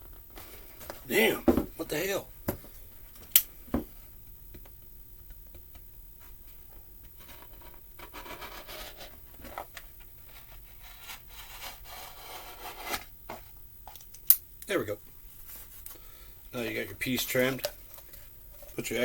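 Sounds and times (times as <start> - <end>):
faint rubbing and scraping: 6.2 - 13.6, 15.3 - 19.0.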